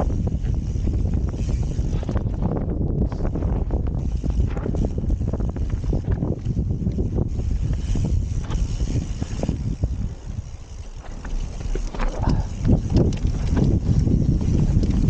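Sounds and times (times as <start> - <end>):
bike rattling: 0.0 - 15.0
wind buffeting microphone: 0.0 - 15.0.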